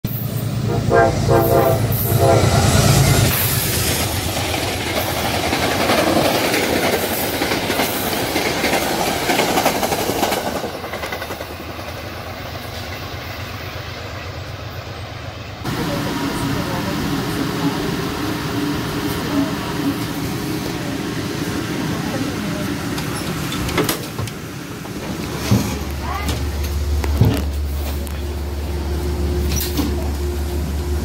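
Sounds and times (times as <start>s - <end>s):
train rumble and wheel clatter: 0.0s - 31.0s
train horn: 0.6s - 3.3s.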